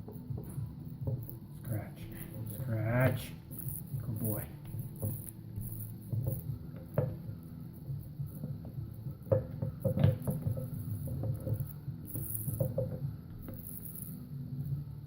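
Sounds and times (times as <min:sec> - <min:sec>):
steady low hum: 0:00.0 - 0:15.0
wood and tools knocking: 0:03.9 - 0:13.8.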